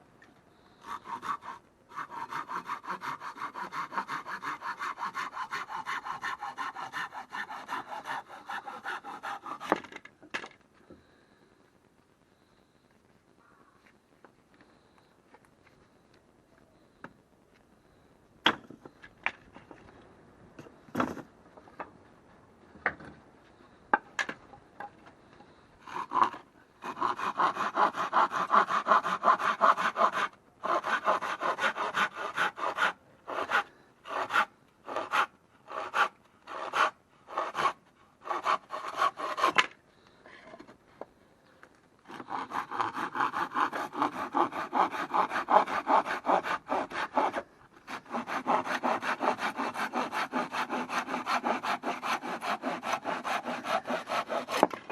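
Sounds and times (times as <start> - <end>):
hand saw cutting wood: 0.8 - 10.1, 25.9 - 39.8, 42.1 - 54.9.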